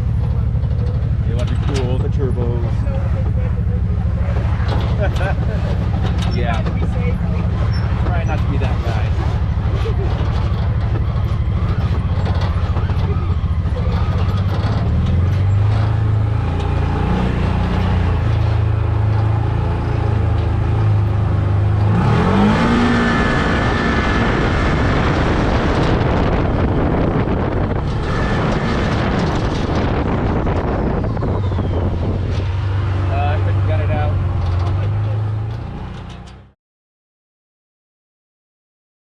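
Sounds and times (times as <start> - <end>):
utility vehicle engine revving: 0.0 - 36.6.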